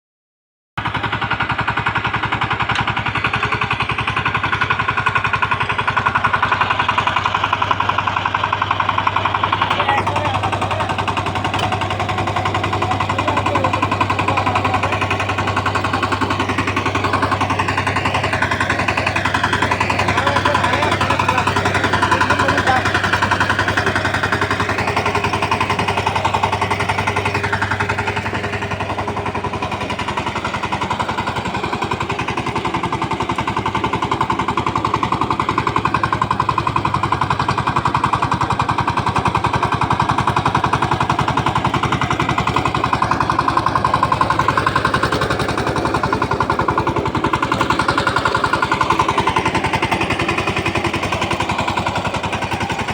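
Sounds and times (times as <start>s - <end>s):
tractor diesel engine chugging: 0.8s - 52.9s.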